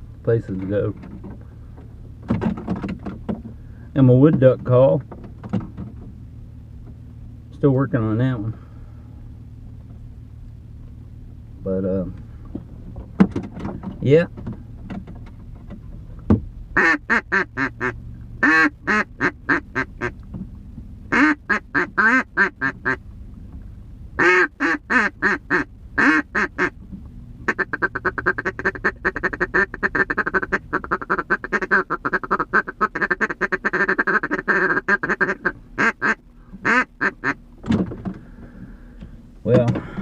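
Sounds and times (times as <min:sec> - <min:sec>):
duck call quacks: 0:16.8 - 0:20.2, 0:21.1 - 0:23.0, 0:24.2 - 0:26.8, 0:27.5 - 0:37.4.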